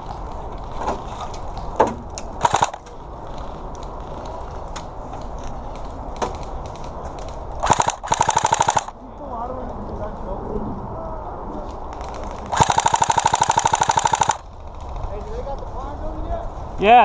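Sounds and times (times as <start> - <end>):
airsoft gun bursts: 2.4 - 2.8, 7.6 - 8.9, 12.5 - 14.5.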